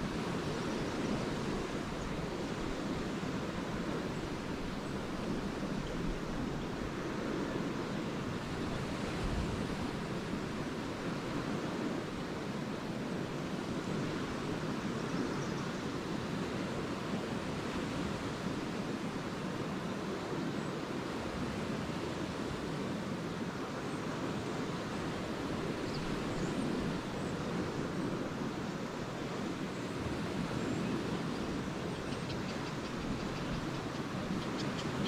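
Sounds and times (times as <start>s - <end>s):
waves washing onto beach: 0.0s - 35.0s.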